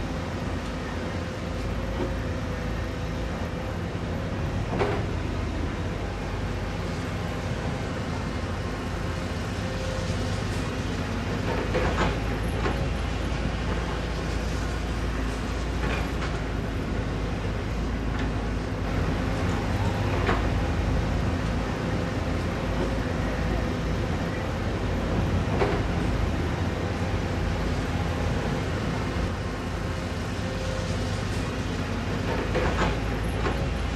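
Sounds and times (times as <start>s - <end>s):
heavy diesel machinery drone: 0.0s - 33.9s.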